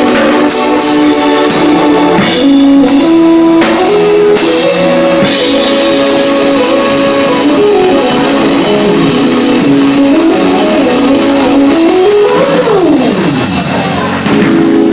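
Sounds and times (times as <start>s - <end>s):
synthesizer held notes melody: 0.0s - 14.1s.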